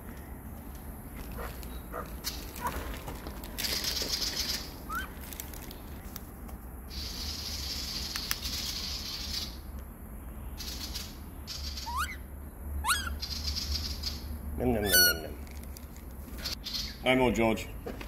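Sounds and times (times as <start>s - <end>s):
bird chirping and whistling: 4.9s - 5.1s, 11.5s - 12.2s, 12.8s - 14.2s, 14.8s - 15.3s.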